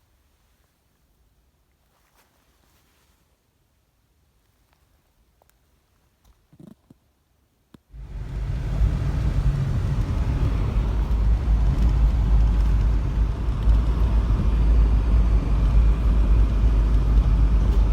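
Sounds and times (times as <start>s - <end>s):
road noise: 7.9s - 17.9s
vehicle rumbling: 7.9s - 17.9s.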